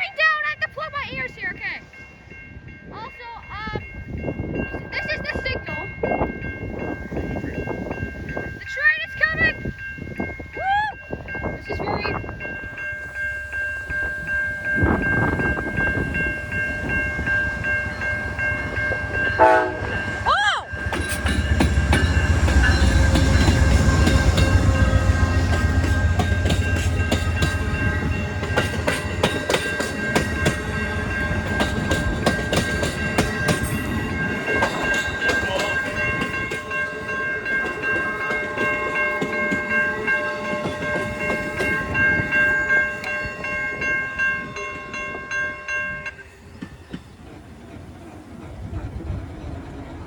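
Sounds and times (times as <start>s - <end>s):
crossing bell ringing tones: 0.0s - 47.2s
low rumble of locomotive: 0.0s - 50.0s
rapid train wheel clacks: 14.7s - 45.2s.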